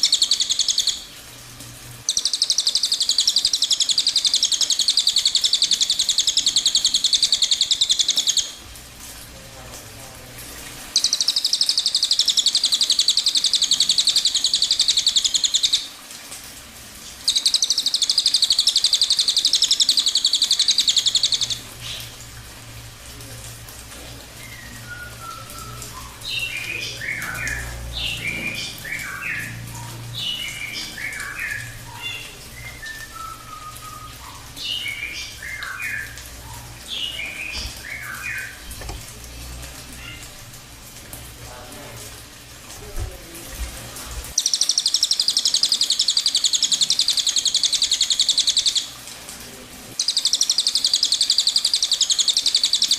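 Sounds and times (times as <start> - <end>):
bird trilling and chirping: 0.0 - 1.1, 2.0 - 8.6, 11.0 - 15.9, 17.2 - 22.1, 24.4 - 38.8, 44.4 - 48.9, 50.0 - 52.9.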